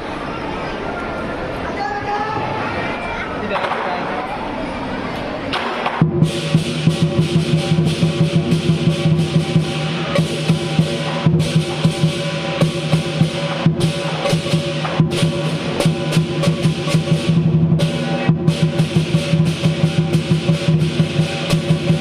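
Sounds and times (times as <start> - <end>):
big drum beating: 5.6 - 22.0
crashing cymbals: 6.0 - 22.0.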